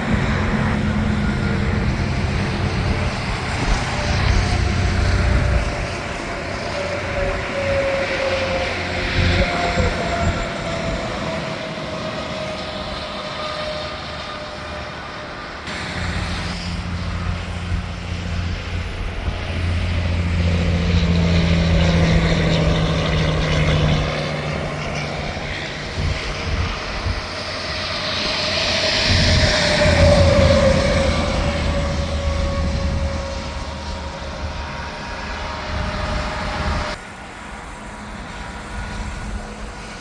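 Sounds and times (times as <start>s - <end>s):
heavy trucks passing: 0.0s - 40.0s.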